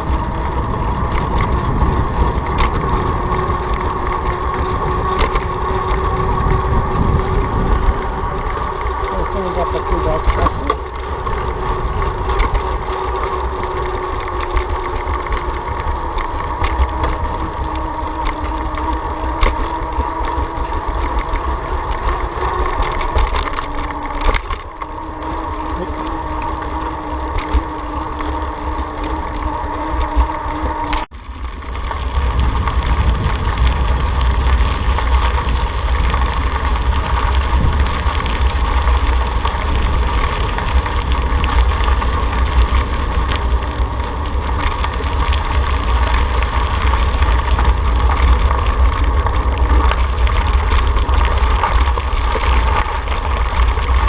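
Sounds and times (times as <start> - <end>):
vehicle hum: 0.0 - 54.0
wind rushing over microphone: 0.0 - 54.0.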